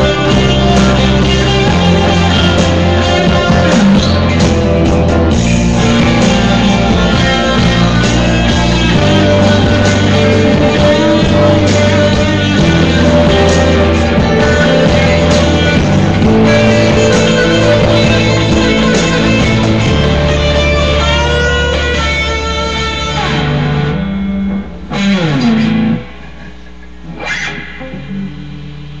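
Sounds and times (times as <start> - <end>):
electric guitar rock music: 0.0 - 29.0.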